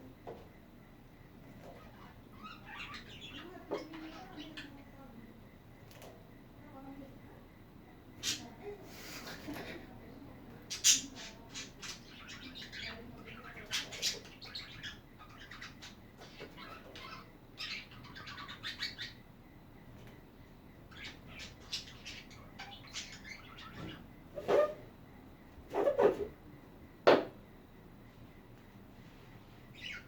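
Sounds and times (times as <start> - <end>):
budgerigars chattering: 1.7 - 4.7, 10.7 - 19.2, 20.9 - 24.0.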